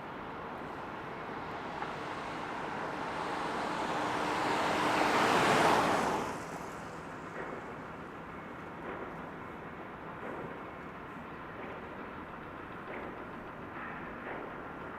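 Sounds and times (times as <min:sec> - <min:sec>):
vehicle passing close by: 0:01.1 - 0:06.9.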